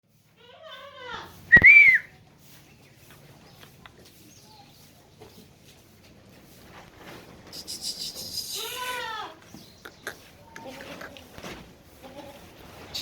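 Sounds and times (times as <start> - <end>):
goat kid bleating: 0.4 - 1.4, 7.8 - 11.4, 12.0 - 13.0
loud high whistle: 1.5 - 2.1.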